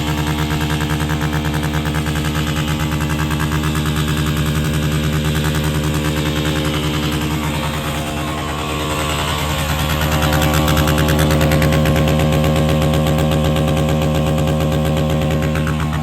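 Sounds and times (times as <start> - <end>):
dirt bike engine on rev limiter: 0.0 - 16.0.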